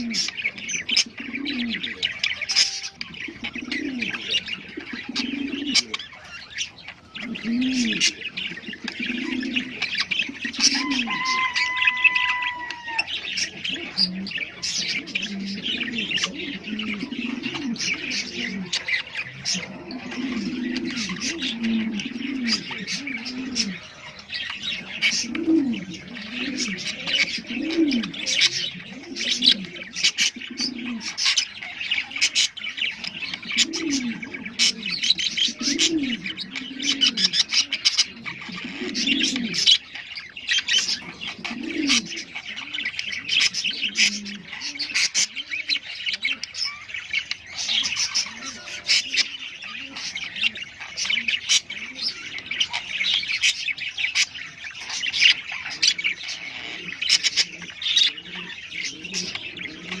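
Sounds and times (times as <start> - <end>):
low cooing calls: 0.0 - 60.0
small parrots chirping and chattering: 0.0 - 60.0.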